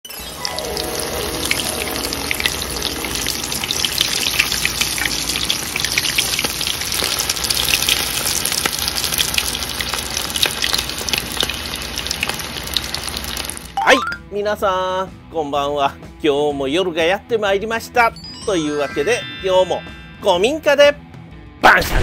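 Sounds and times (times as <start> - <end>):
food frying in deep oil: 0.1 - 13.8.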